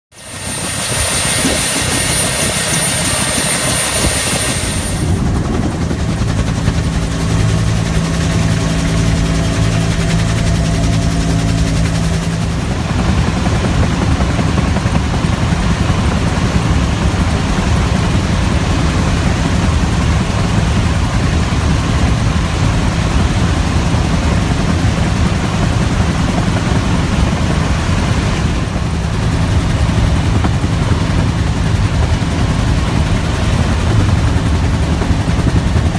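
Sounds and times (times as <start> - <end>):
dense rushing noise: 0.1 - 25.8
helicopter rotor and engine: 0.1 - 35.9
high-pitched turbine whine: 0.1 - 35.9.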